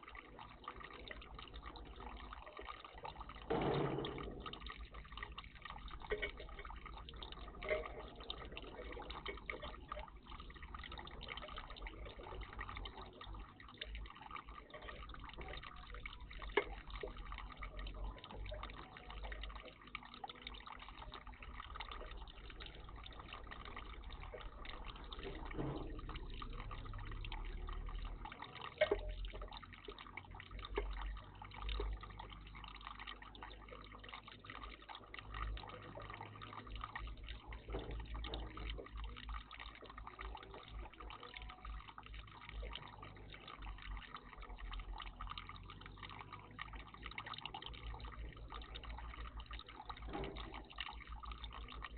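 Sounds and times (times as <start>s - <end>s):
sharp ticks or splashes: 0.0s - 51.9s
water trickling and dripping: 0.0s - 51.9s.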